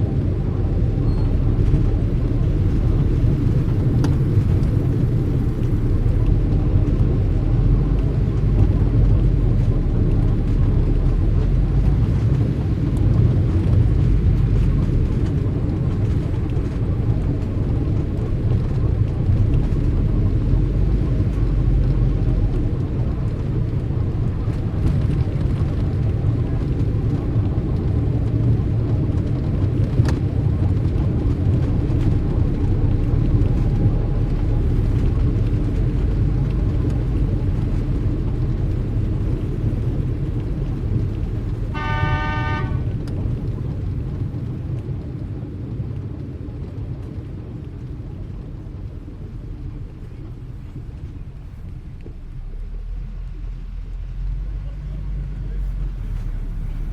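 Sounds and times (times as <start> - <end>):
street traffic rumble: 0.0 - 56.9.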